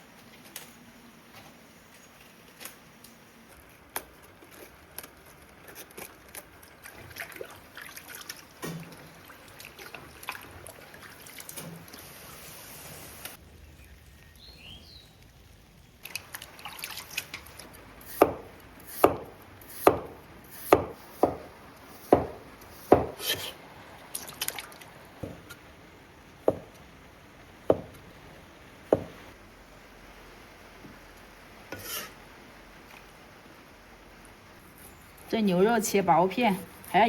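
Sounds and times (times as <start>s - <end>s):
knife slicing on cutting board: 20.6s - 23.6s, 31.7s - 32.2s.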